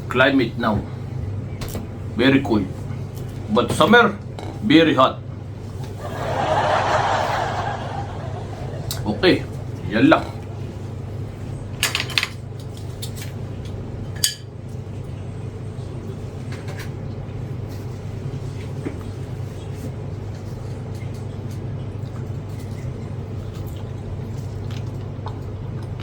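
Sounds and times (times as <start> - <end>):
steady low hum: 0.0 - 11.8
cutlery clinking on plate: 14.2 - 14.5.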